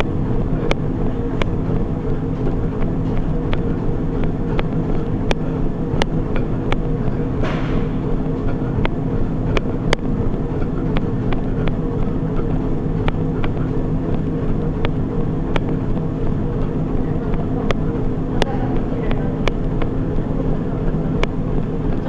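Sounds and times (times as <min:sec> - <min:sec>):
sharp clicks: 0:00.0 - 0:00.8, 0:06.0 - 0:06.9, 0:07.5 - 0:22.0
treadmill motor and belt hum: 0:00.0 - 0:22.0.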